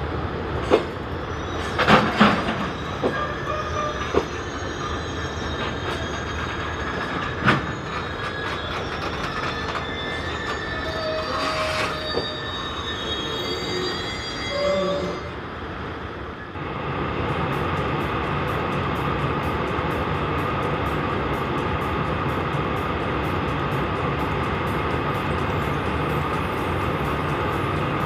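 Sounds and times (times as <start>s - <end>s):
train wagons rolling: 0.2s - 15.8s
wheels squealing: 0.6s - 16.6s.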